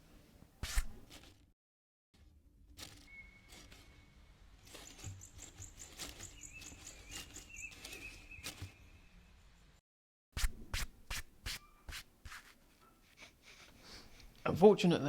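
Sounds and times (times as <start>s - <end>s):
soft rustling: 2.2s - 8.9s
bird calls: 3.0s - 9.4s.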